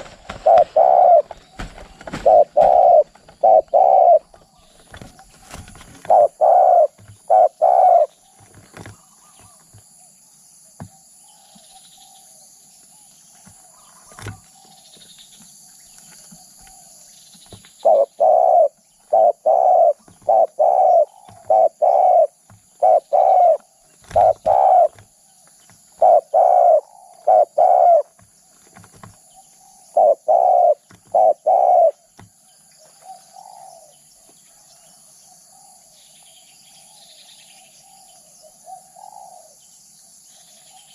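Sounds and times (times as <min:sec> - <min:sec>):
dove cooing: 0:00.0 - 0:09.8, 0:17.6 - 0:25.2, 0:25.9 - 0:32.2, 0:33.0 - 0:34.0, 0:38.4 - 0:39.6.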